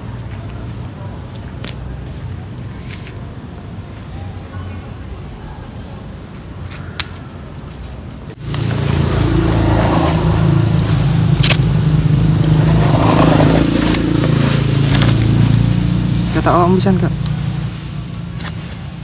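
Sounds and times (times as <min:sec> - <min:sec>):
street background: 0:00.0 - 0:19.0
vehicle engine humming: 0:08.1 - 0:19.0.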